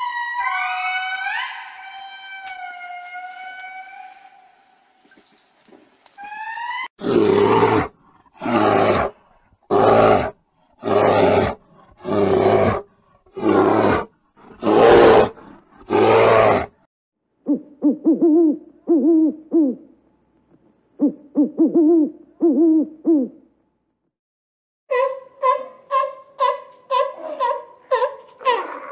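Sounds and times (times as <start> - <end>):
bear roaring: 7.0 - 16.8
owl hooting: 17.5 - 19.9, 21.0 - 23.4.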